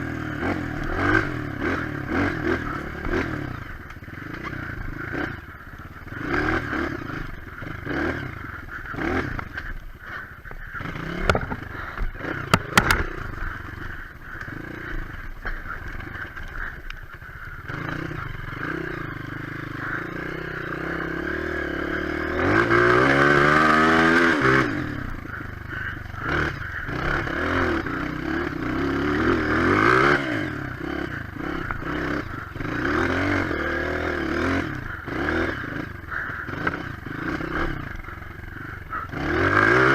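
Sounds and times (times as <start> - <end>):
trail motorcycle engine revving: 0.0 - 39.9
sharp knocks and clatters: 11.2 - 13.1.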